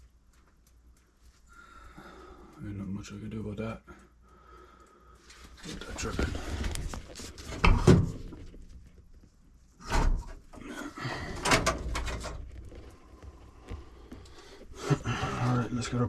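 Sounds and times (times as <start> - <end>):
knocks and clunks of handling: 5.6 - 9.2, 11.2 - 14.7.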